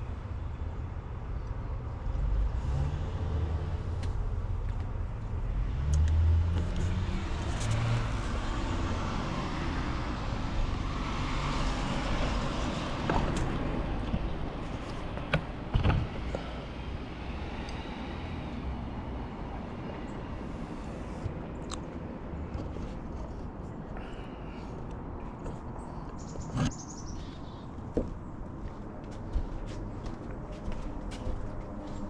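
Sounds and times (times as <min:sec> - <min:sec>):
vehicle passing by: 0:02.1 - 0:04.5, 0:05.4 - 0:15.0.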